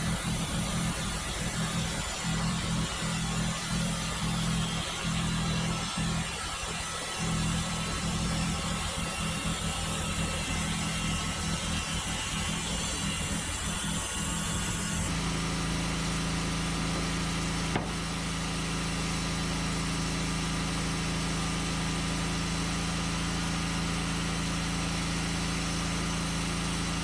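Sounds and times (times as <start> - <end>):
band sawmill engine running: 0.0 - 19.0.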